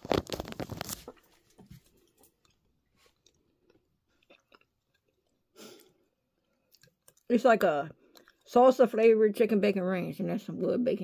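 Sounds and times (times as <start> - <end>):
faint chewing: 0.4 - 7.3, 7.9 - 8.5.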